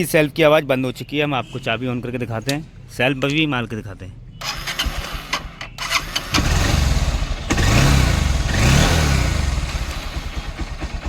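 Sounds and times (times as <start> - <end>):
starter motor cranking: 4.4 - 10.8
engine revving and running: 4.5 - 11.0.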